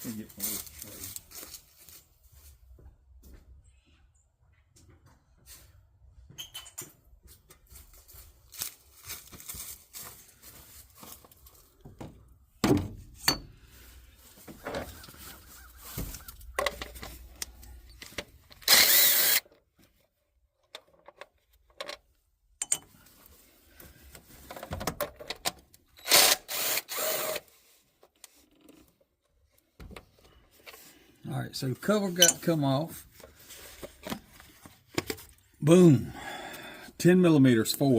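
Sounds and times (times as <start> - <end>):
tools clicking and clinking: 16.4 - 19.6, 22.6 - 23.0, 32.2 - 32.5.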